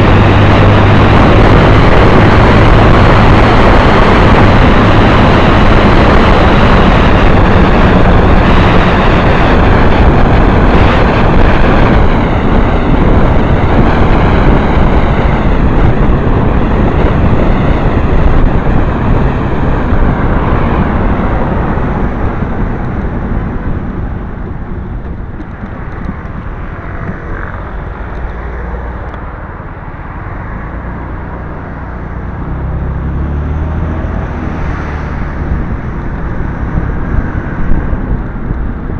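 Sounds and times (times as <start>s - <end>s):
motorcycle engine: 0.0s - 38.9s
rushing wind noise: 0.0s - 38.9s.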